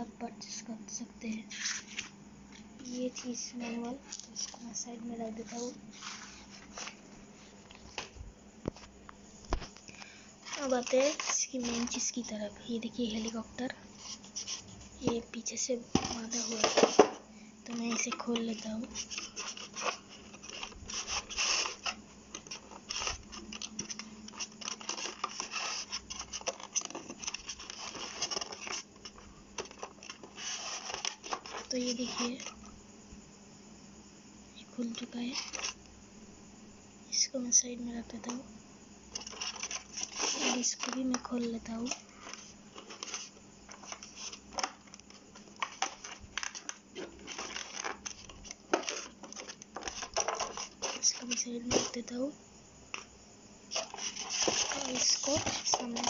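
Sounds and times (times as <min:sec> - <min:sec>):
faint steady hum: 0:00.0 - 0:56.0
packaging scraping and crackling: 0:10.0 - 0:12.1, 0:16.0 - 0:17.1, 0:17.7 - 0:32.6, 0:39.1 - 0:52.0, 0:53.7 - 0:56.0.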